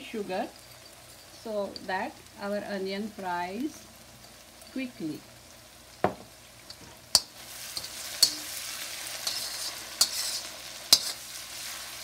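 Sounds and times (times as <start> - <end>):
onions sizzling in oil: 0.0 - 12.0
metal spatula clinking against pan: 6.7 - 8.5, 9.2 - 11.2.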